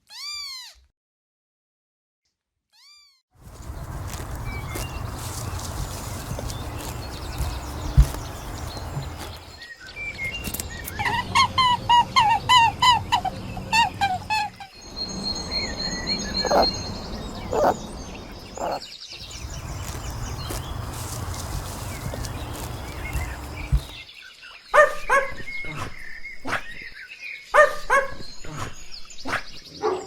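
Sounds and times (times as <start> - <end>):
birds chirping: 3.4 - 24.1
bird whistles: 10.2 - 18.8.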